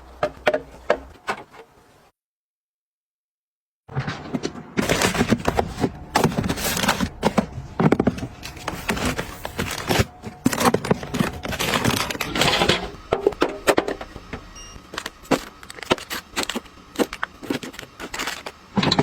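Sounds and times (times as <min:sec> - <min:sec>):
food packaging rustling: 0:04.8 - 0:13.4, 0:14.8 - 0:19.0.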